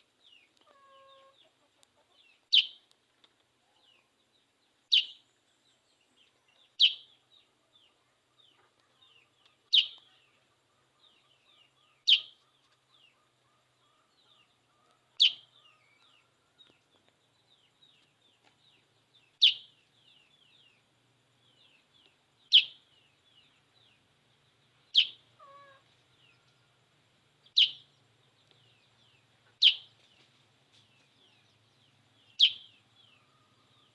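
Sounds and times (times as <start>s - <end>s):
bulbul calling: 2.5s - 2.8s, 4.9s - 5.2s, 6.6s - 7.2s, 8.4s - 14.5s, 15.1s - 16.2s, 19.4s - 19.8s, 22.5s - 24.0s, 24.9s - 26.3s, 27.4s - 28.7s, 29.5s - 30.0s, 31.5s - 33.9s
faint bird twittering: 4.9s - 16.8s, 17.4s - 26.8s, 27.4s - 33.9s.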